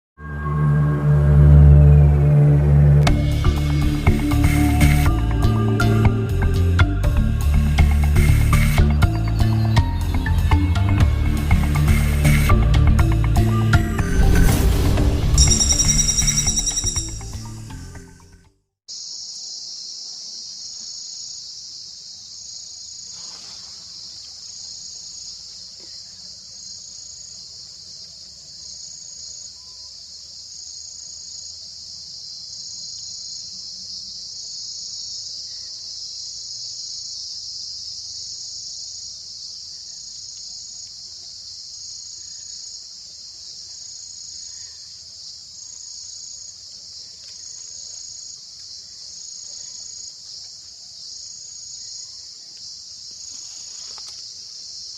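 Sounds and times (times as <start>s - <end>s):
insect pulsed high note: 0.2s - 6.7s
insects shrill hiss: 18.9s - 54.9s.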